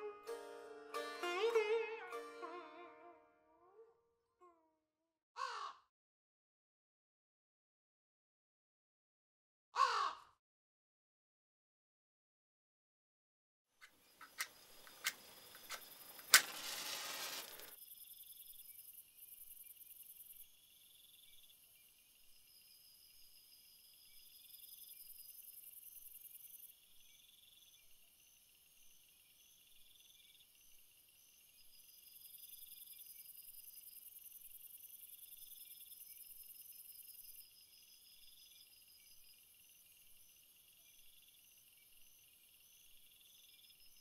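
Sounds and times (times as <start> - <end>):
crickets chirping: 13.8 - 44.0
rustling noise: 14.2 - 17.8.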